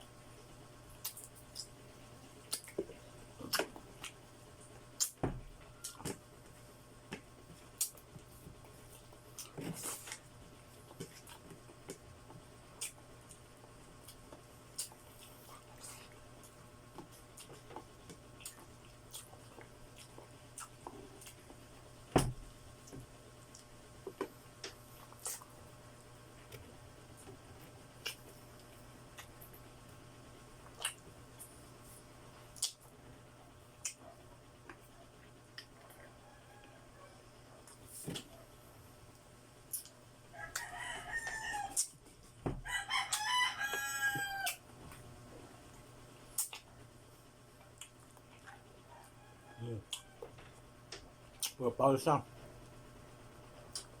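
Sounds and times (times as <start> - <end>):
chewing chicken feet: 7.6 - 21.6, 39.7 - 42.1, 42.8 - 45.1, 47.6 - 51.6
rooster crowing: 35.9 - 37.3, 40.3 - 41.9, 42.6 - 44.6, 48.9 - 50.4.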